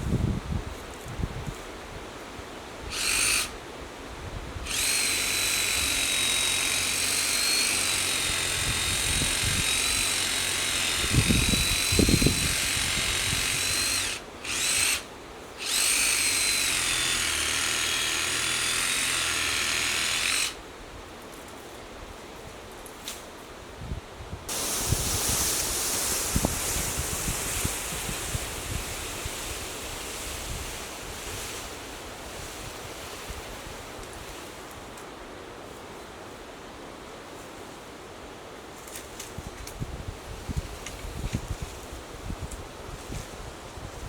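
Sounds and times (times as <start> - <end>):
power tool motor whining: 2.9 - 3.6, 4.6 - 20.6.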